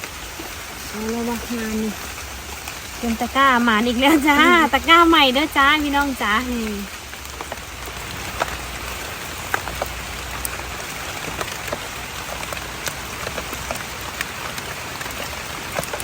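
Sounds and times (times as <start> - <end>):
heavy rain falling: 0.0 - 16.0
sharp taps of raindrops: 0.0 - 16.0.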